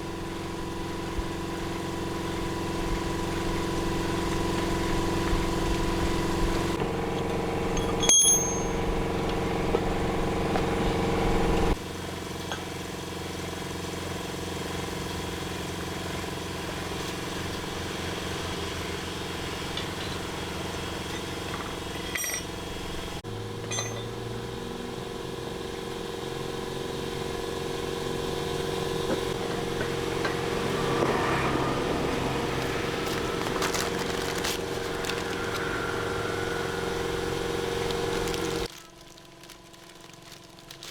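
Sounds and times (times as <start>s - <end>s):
machine humming: 17.2s - 38.7s.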